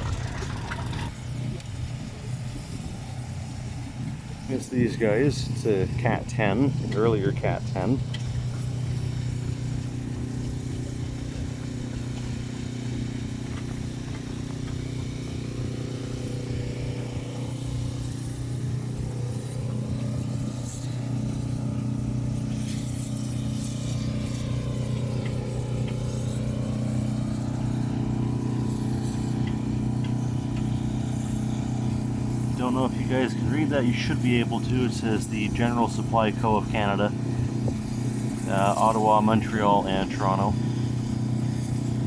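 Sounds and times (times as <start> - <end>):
engine running steadily: 0.0 - 42.0.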